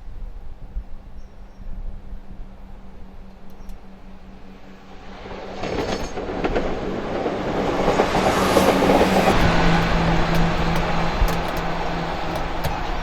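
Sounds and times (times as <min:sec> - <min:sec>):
diesel train engine hum: 0:00.0 - 0:13.0
wheels clicking over rail joints: 0:03.2 - 0:13.0.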